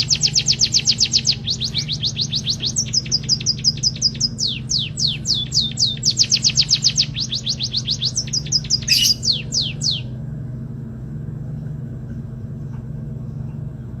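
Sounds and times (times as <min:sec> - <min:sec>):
steady low hum: 0:00.0 - 0:14.0
bird whistling down-slurred notes: 0:08.7 - 0:10.0
harsh bird call burst: 0:08.8 - 0:09.4.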